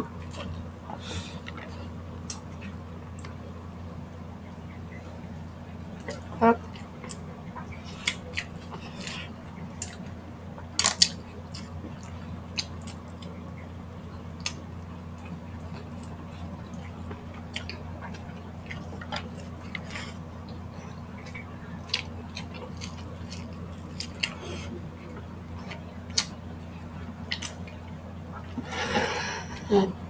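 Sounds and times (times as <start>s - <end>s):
steady low hum: 0.0s - 30.0s
chewing and mouth smacks: 6.0s - 13.3s, 15.2s - 28.6s.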